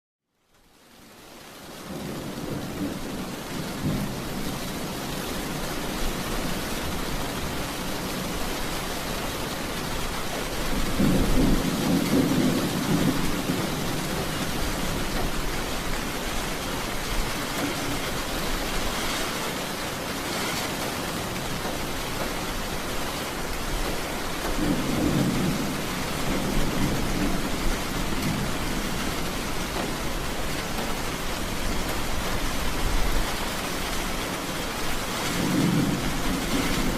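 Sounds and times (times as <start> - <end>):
steady rain: 0.2 - 36.9
low rolls of thunder: 1.9 - 5.1, 10.7 - 15.5, 23.9 - 30.0, 35.2 - 36.9.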